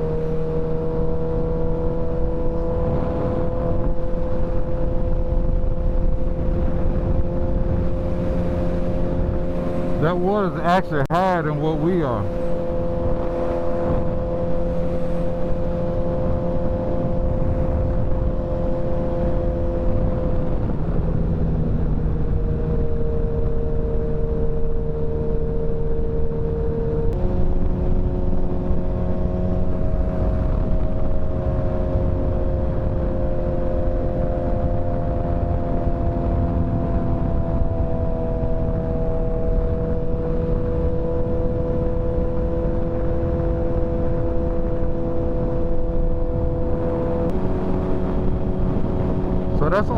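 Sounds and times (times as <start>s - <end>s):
wind: 0.0s - 49.9s
road rumble: 45.0s - 49.9s.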